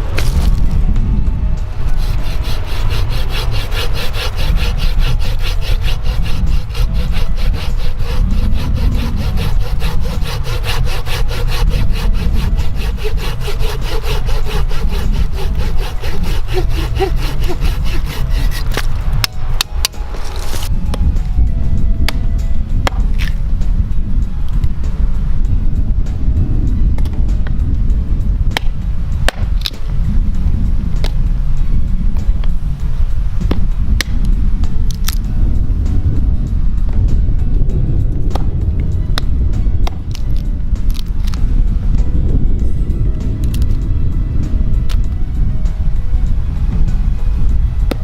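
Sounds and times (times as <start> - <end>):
hand saw cutting wood: 1.8 - 19.4.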